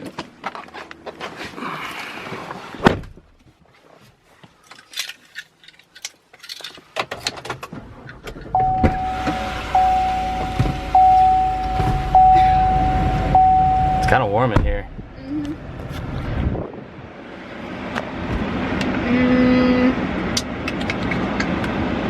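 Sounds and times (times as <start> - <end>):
keys and car door clicks: 4.6 - 9.4, 10.3 - 12.4
vehicle warning chime: 8.6 - 14.5.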